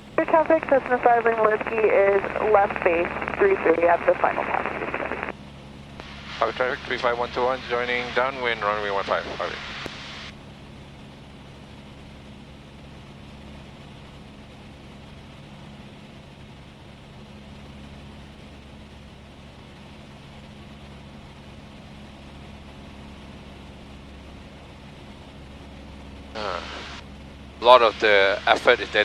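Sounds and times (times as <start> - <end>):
aircraft engine droning: 0.0 - 29.0
steady cabin hiss: 6.0 - 10.3, 26.4 - 29.0.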